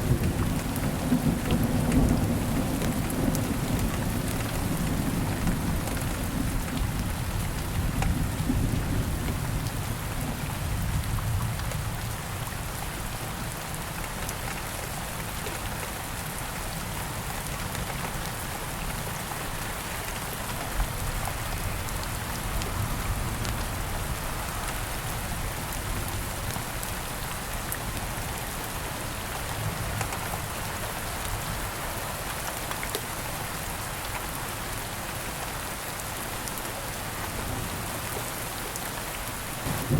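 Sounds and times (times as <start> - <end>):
steady rain hiss: 0.0 - 39.9
thunder rumble: 39.6 - 39.9.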